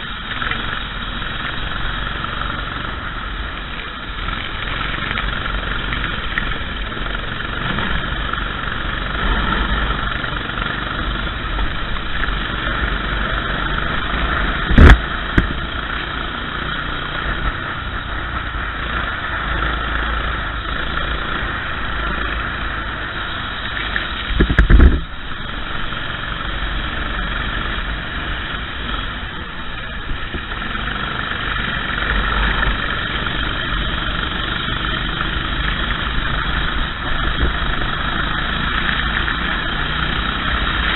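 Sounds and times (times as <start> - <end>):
racing kart engine running: 0.0 - 40.9
loud thumps: 14.7 - 15.6.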